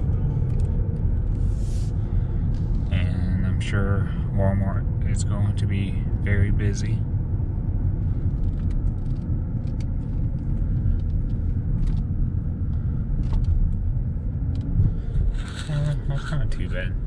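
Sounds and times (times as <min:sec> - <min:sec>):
car driving rumble: 0:00.0 - 0:17.0.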